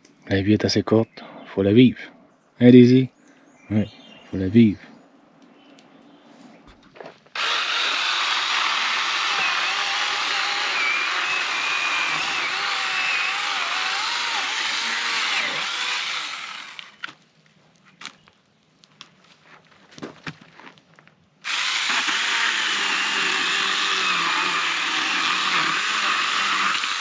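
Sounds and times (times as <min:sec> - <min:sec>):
power tool motor running: 0:07.4 - 0:17.0, 0:21.4 - 0:27.0.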